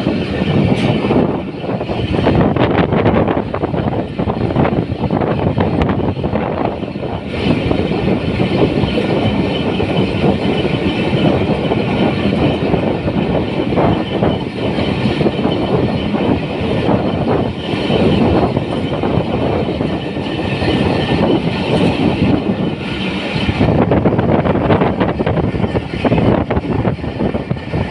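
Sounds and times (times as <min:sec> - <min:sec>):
train wheels on rails: 0:00.0 - 0:27.9.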